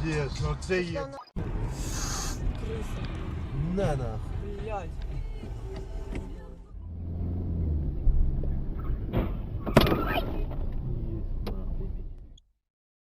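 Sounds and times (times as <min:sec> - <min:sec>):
car engine and road rumble: 0:00.0 - 0:12.4.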